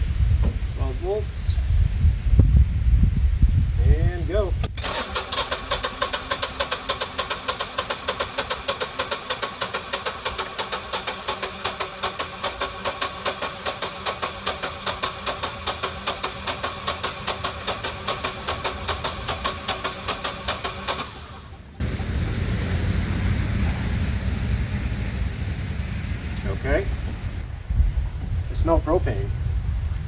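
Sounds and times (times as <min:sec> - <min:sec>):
generator engine cranking: 0:04.6 - 0:24.1.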